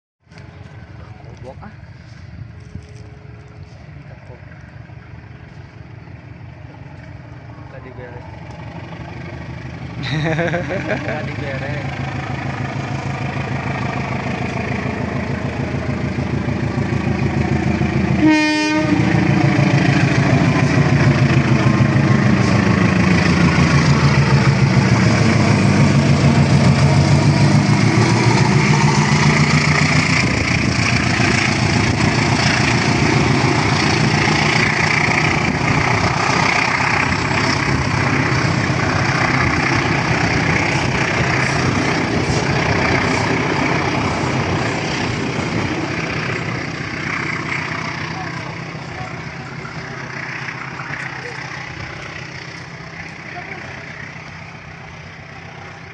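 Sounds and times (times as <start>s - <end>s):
train engine running: 0.3s - 55.9s
train horn blast: 18.1s - 19.3s.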